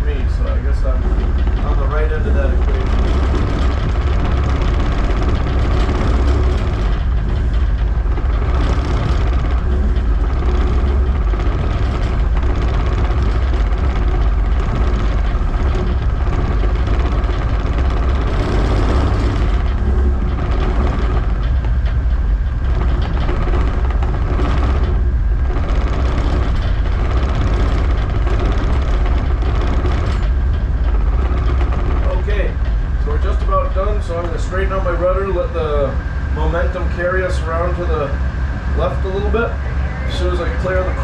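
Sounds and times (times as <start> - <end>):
diesel engine drone: 0.0 - 41.0
steady hum: 0.0 - 41.0.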